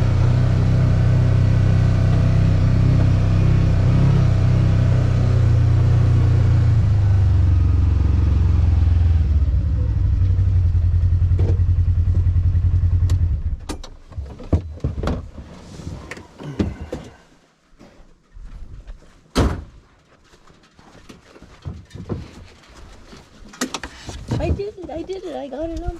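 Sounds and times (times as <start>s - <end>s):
motor rumbling: 0.0s - 13.7s.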